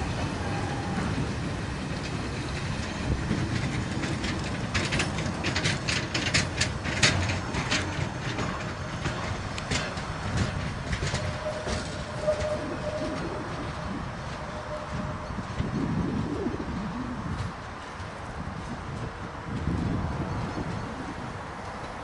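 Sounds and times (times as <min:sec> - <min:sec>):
wheel clacks over rail joints: 0:00.0 - 0:16.2, 0:17.3 - 0:22.0
train rail rumble: 0:00.0 - 0:22.0.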